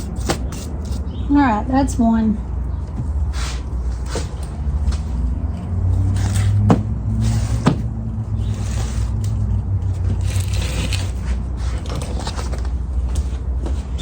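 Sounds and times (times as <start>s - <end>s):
short scraping sounds: 3.3s - 4.4s.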